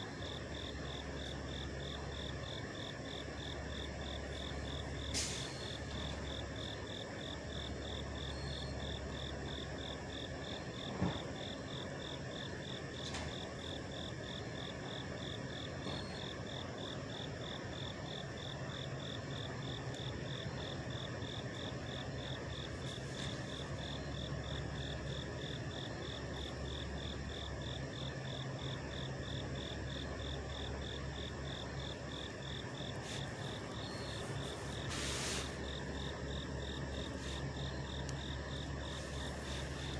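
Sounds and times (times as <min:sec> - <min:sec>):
trucks idling: 0:00.0 - 0:10.4, 0:21.6 - 0:39.9.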